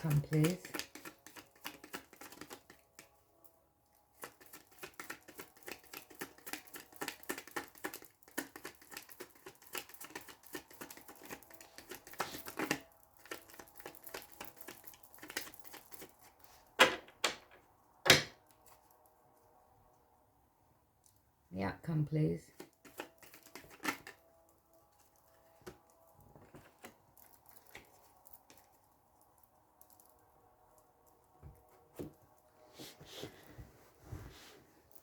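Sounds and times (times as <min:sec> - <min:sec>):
cards being shuffled: 0:00.0 - 0:03.2, 0:04.2 - 0:16.0, 0:22.6 - 0:24.2
cards slapping: 0:00.2 - 0:02.8.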